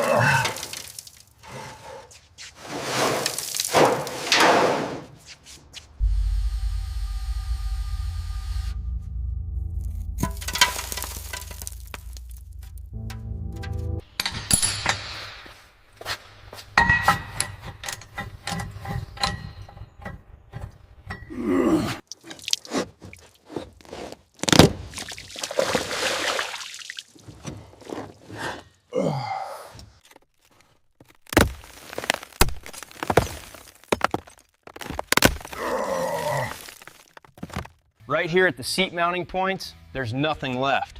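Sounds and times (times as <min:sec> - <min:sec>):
scraping and crunching: 0:02.2 - 0:05.5, 0:08.8 - 0:21.4, 0:22.2 - 0:25.2, 0:29.9 - 0:37.9.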